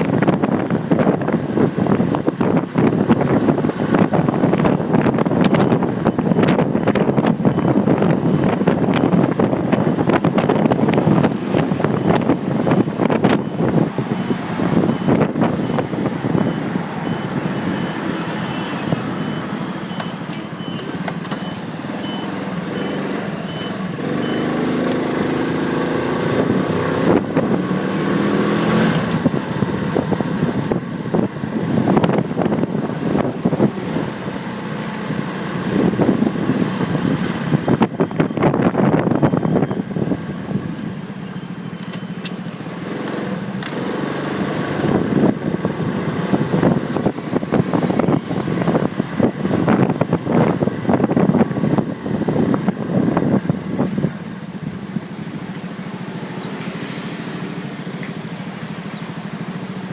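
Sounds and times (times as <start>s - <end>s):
road noise: 0.0s - 59.9s
high beeping: 11.2s - 24.8s.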